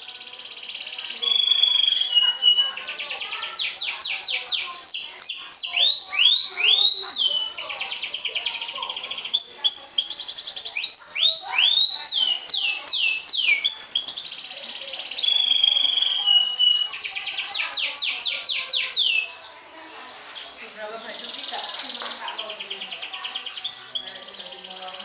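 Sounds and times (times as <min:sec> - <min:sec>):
canary singing trills: 0:00.0 - 0:25.0
canary whistled notes: 0:01.2 - 0:02.6.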